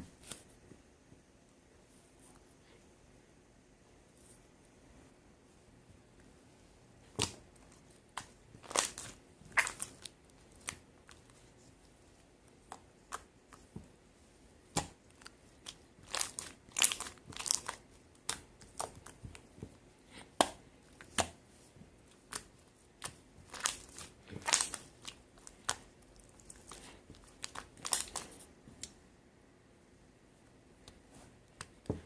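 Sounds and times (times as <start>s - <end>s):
slime popping and crackling: 8.2s - 11.2s, 14.7s - 19.4s, 22.2s - 28.3s.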